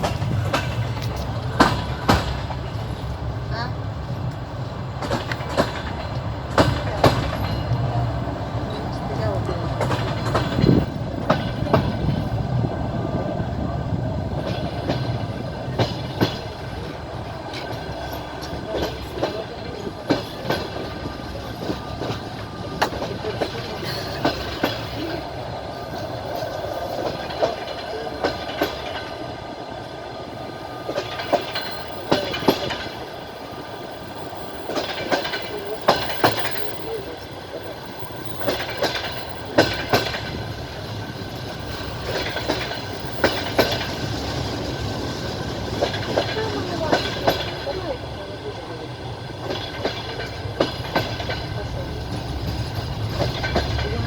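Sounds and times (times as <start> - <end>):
train rolling rumble: 0.0 - 54.0.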